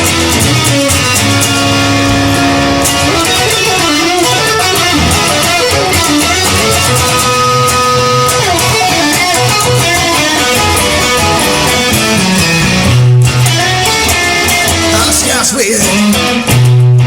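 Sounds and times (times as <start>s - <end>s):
guitar-led band music: 0.0s - 17.0s
sliding bending guitar line: 0.0s - 17.0s
heavy bass note: 1.2s - 7.2s.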